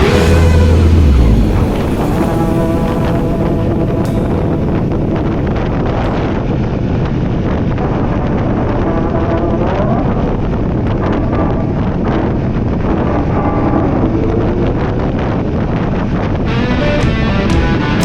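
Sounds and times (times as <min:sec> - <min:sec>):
motorcycle engine running: 0:00.0 - 0:05.4
wind noise on microphone: 0:00.0 - 0:18.0.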